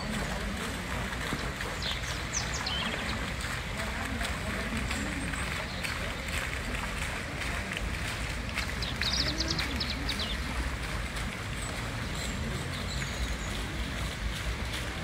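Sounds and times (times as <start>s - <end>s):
fountains splashing: 0.0s - 15.0s.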